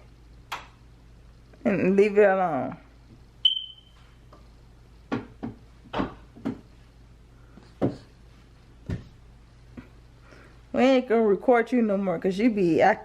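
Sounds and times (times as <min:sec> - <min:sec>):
sharp click with high ringing tone: 0:03.4 - 0:03.9.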